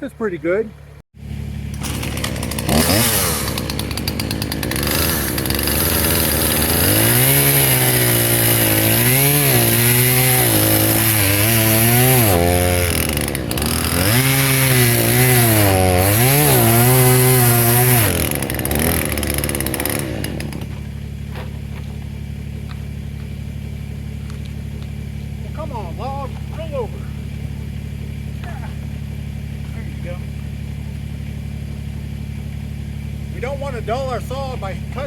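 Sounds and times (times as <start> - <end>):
chainsaw cutting a log: 1.4 - 21.0.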